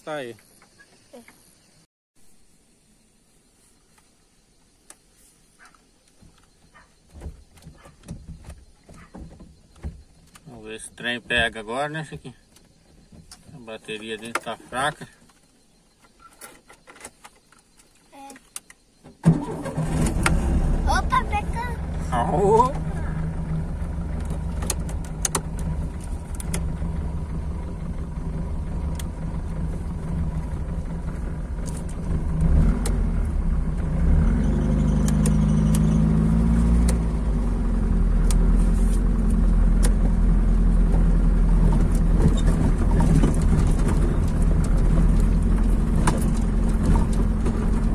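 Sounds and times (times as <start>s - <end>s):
car engine idling and revving: 5.6s - 47.9s
sharp clicks and rattles: 24.0s - 33.0s, 40.9s - 47.9s.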